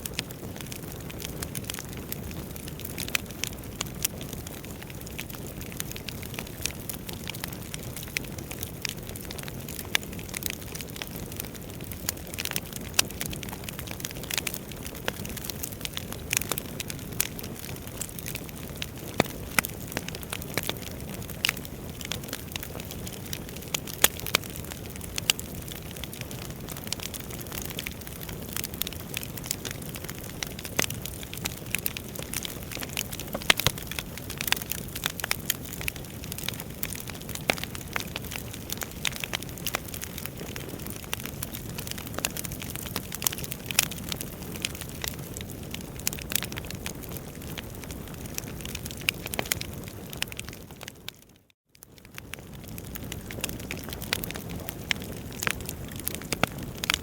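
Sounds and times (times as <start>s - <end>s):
burning logs crackling and popping: 0.0s - 57.0s
low rush of flames: 52.0s - 57.0s.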